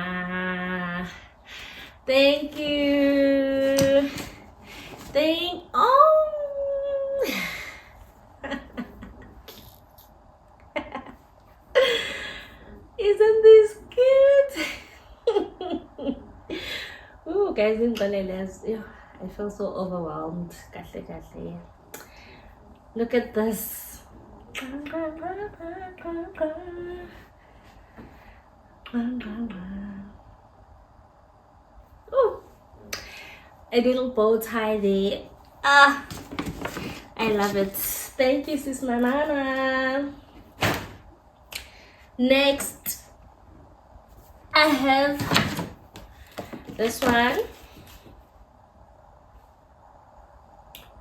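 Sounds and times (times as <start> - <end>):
woman humming: 5.8 - 7.5.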